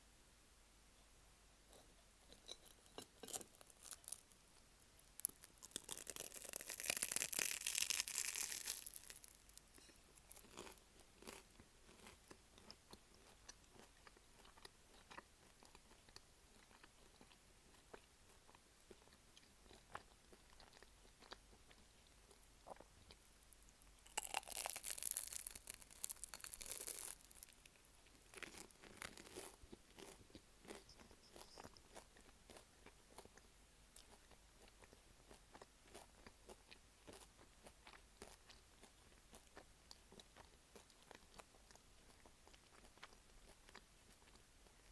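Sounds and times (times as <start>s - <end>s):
crunching pie crust: 2.3s - 21.9s, 22.7s - 33.4s.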